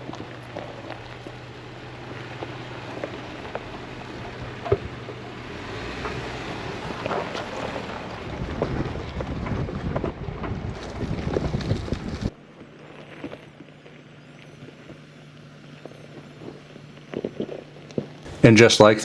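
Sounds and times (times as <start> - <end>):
tyres crunching on gravel: 0.0 - 19.0
wind rushing past microphone: 8.1 - 12.3.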